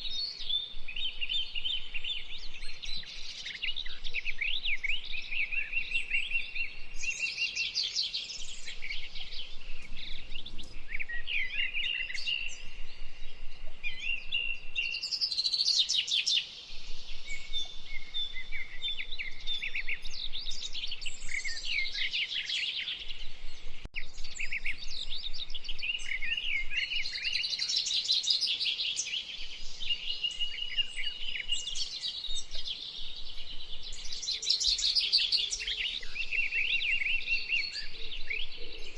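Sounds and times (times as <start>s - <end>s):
wild birds singing: 0.0s - 38.9s.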